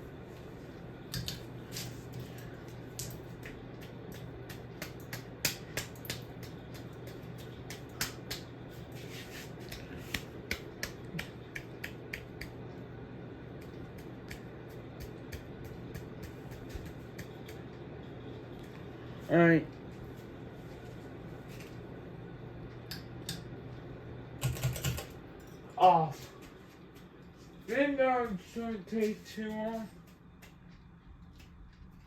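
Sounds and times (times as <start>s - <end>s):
ceiling fan humming: 0.0s - 32.0s
sharp irregular clicks: 3.0s - 8.5s.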